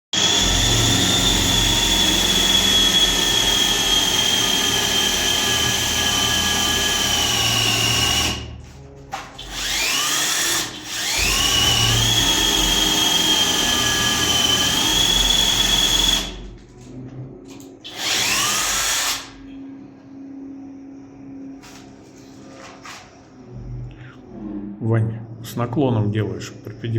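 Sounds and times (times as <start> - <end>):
power tool whining: 0.2 - 8.5, 9.4 - 16.4
low hum: 19.5 - 26.9.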